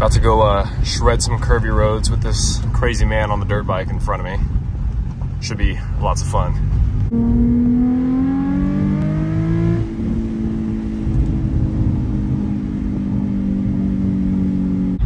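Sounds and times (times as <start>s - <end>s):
car engine revving: 6.7s - 15.0s.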